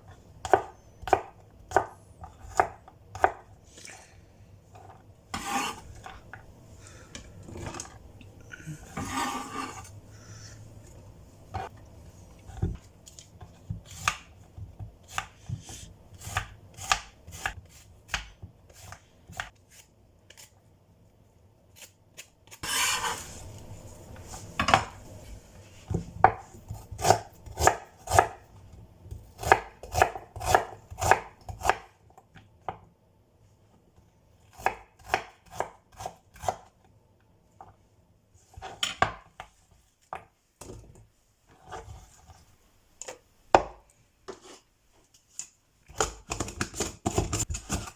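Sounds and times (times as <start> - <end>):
knife chopping on cutting board: 0.4 - 3.4, 5.3 - 6.1, 8.9 - 9.9, 13.7 - 19.5, 22.6 - 23.3, 25.9 - 28.4, 29.1 - 31.9, 34.5 - 36.7.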